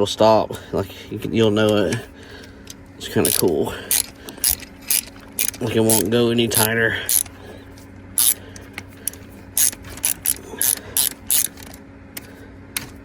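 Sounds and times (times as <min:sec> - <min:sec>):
ratchet tool clicking: 0:03.2 - 0:07.4, 0:08.2 - 0:08.4, 0:09.0 - 0:11.8.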